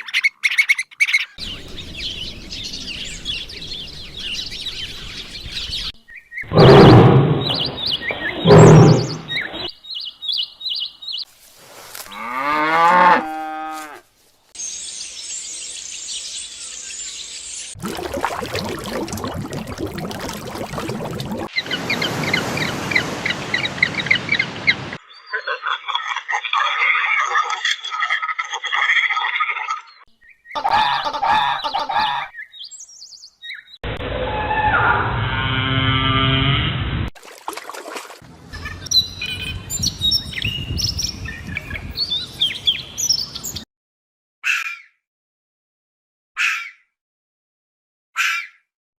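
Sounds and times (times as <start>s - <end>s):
chorus of bird calls: 0.0s - 11.2s, 21.5s - 33.8s
songbirds chirping and whistling: 0.0s - 11.3s, 14.5s - 17.8s, 21.5s - 26.2s, 29.9s - 33.8s, 38.5s - 43.6s.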